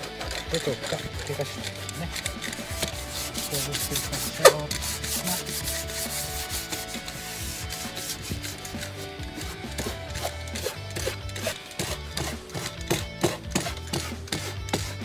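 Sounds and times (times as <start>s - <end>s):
sandpaper scraping on wood: 0.0s - 15.0s.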